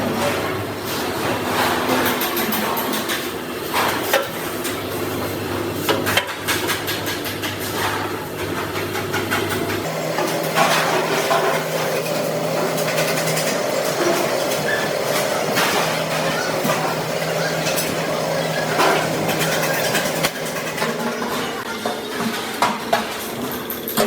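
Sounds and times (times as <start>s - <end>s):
machine motor hum: 9.8s - 21.8s.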